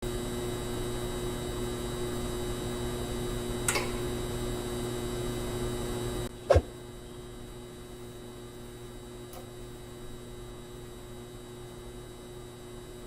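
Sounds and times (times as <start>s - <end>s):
electrical hum: 0.1s - 13.0s
high whine: 6.3s - 6.7s.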